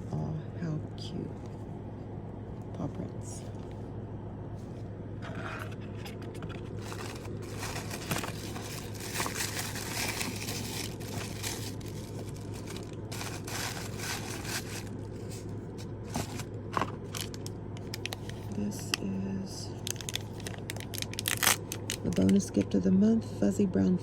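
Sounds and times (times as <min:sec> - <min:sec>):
steady low hum: 0:00.0 - 0:24.0
packaging crinkling and rustling: 0:05.5 - 0:19.0, 0:19.8 - 0:22.6.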